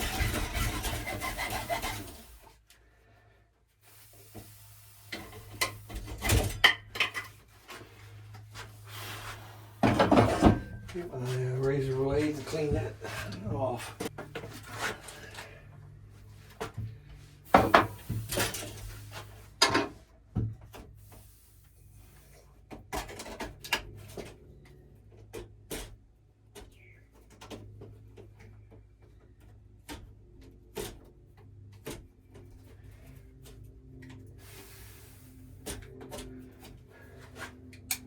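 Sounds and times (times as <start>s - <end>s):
razor blade scraping pipe: 0.0s - 2.5s.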